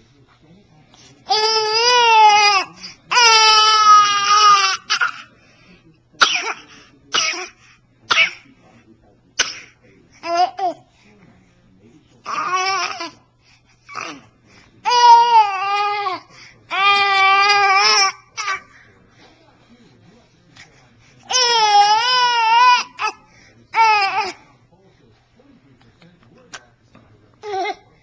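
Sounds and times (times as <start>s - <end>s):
baby squealing and shrieking: 21.3s - 23.1s.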